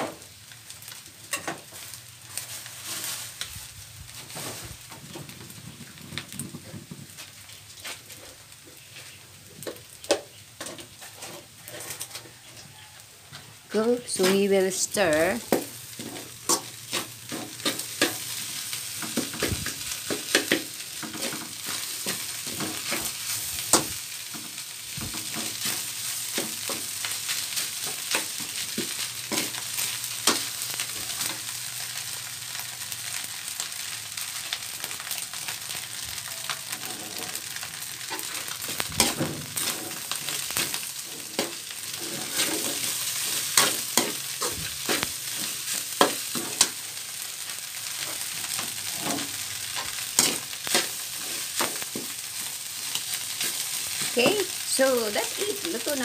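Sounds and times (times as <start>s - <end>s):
rice sizzling in a wok: 0.0s - 56.0s
spatula scraping a pan: 8.8s - 12.6s, 15.5s - 31.9s, 35.0s - 56.0s.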